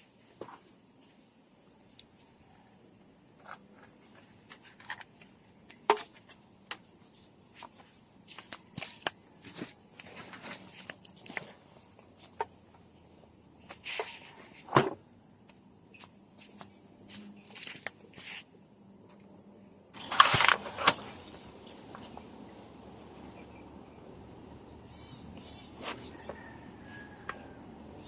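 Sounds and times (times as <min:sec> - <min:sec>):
field insects droning: 0:00.0 - 0:28.0
handling knocks and clicks: 0:20.0 - 0:22.3.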